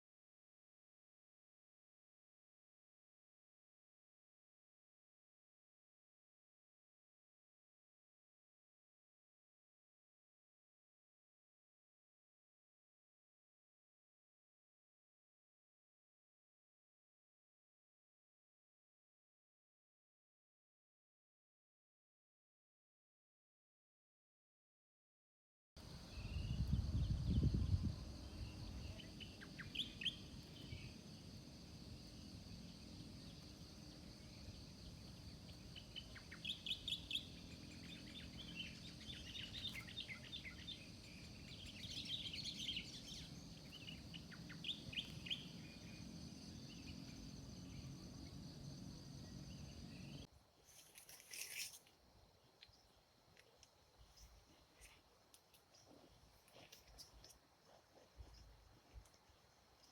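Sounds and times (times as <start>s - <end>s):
wind rumble: 25.8s - 36.2s
wind buffeting microphone: 25.9s - 29.2s
birds chirping: 25.9s - 31.3s, 32.0s - 50.3s.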